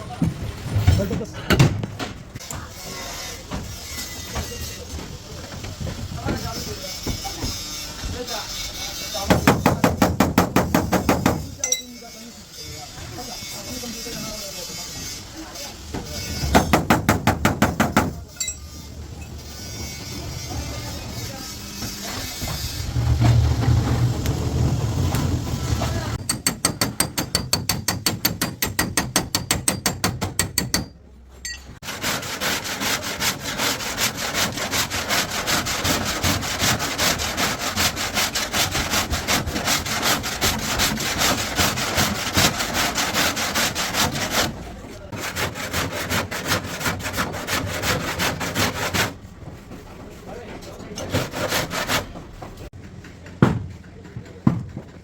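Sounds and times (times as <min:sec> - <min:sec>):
hand tool scraping steel: 0:06.2 - 0:24.0, 0:25.4 - 0:49.2, 0:50.7 - 0:52.2.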